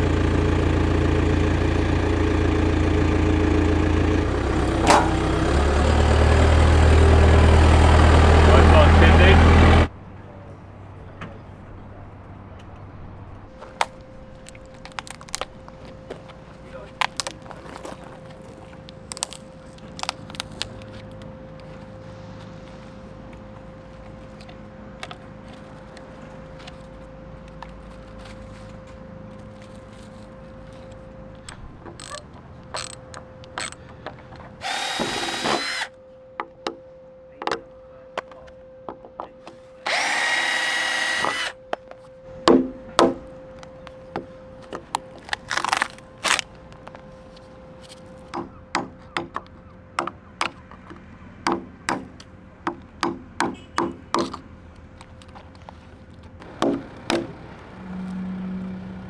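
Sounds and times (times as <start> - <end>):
power drill whining: 2.5 - 9.9, 34.6 - 35.9, 39.8 - 41.6.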